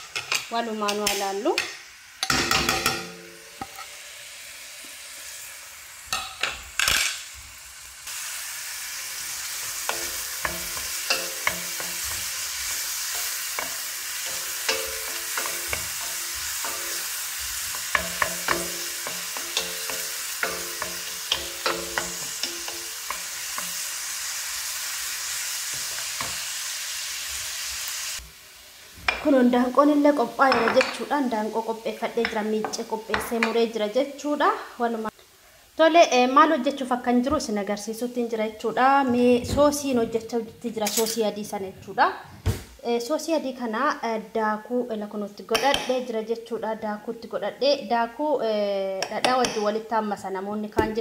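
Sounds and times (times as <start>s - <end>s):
spoon scraping a pan: 0.0s - 4.0s, 9.2s - 26.7s
onions sizzling in a pan: 0.0s - 41.4s
utensils knocking: 9.9s - 23.8s.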